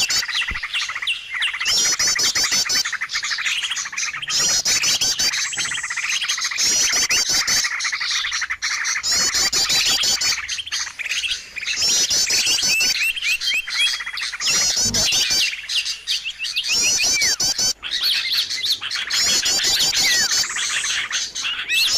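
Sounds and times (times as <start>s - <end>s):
high-pitched bird trills: 0.0s - 21.9s
songbirds chirping: 0.0s - 21.9s.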